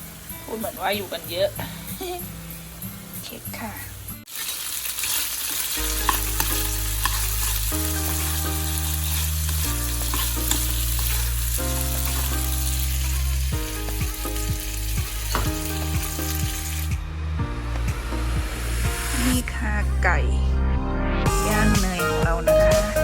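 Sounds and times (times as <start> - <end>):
food sizzling in a pan: 0.0 - 17.0
background music: 5.6 - 23.0.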